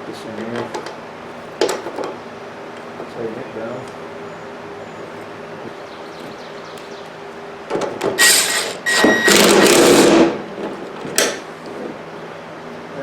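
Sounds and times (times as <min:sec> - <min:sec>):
power tool bursts: 0:08.1 - 0:10.4.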